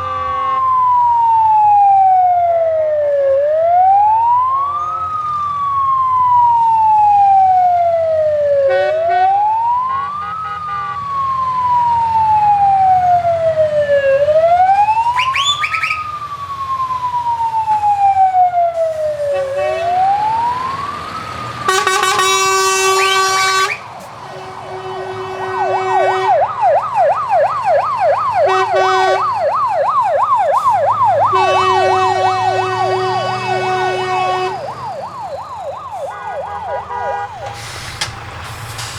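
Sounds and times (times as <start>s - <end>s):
horn blasts: 0.0s - 0.8s, 8.7s - 11.0s, 18.8s - 20.2s, 21.7s - 26.6s, 28.4s - 29.3s, 31.2s - 34.9s, 35.9s - 38.9s
electronic siren wailing: 11.4s - 37.4s
truck engine running: 18.9s - 38.9s.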